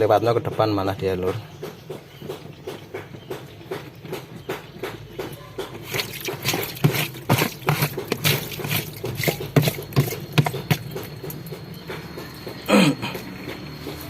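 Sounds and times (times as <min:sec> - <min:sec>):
water splashing and dripping: 0:05.6 - 0:12.2.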